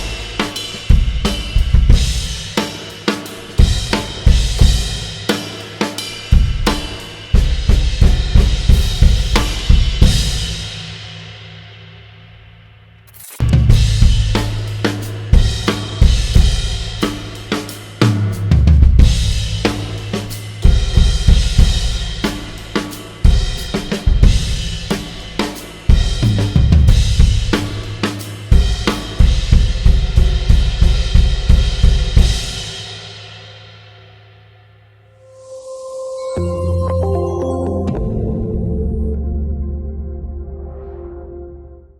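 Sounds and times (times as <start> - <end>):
snare drum: 0.0 - 10.4, 13.1 - 32.3
bass drum: 3.6 - 5.0, 13.4 - 22.6, 25.9 - 32.4.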